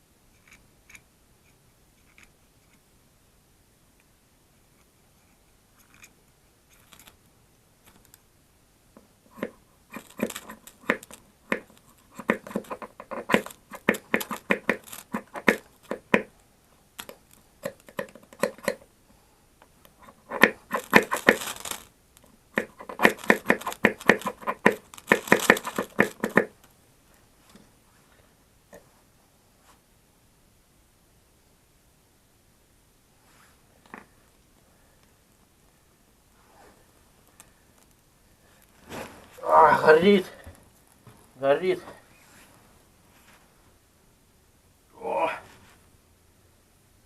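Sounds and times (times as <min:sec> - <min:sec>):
kindling tearing and crackling: 0:09.3 - 0:16.2, 0:20.0 - 0:26.5.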